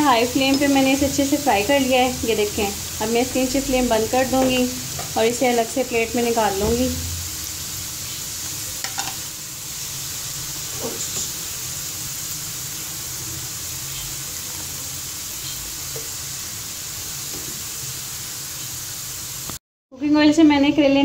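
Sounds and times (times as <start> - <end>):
vegetables sizzling in oil: 0.0 - 19.6
metal spoon clinking on pan: 8.8 - 9.2.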